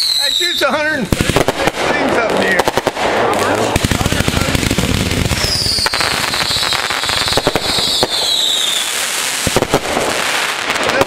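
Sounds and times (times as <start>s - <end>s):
falling firework whistle: 0.0s - 0.7s, 5.4s - 9.7s
fireworks pops and crackling: 0.0s - 11.0s.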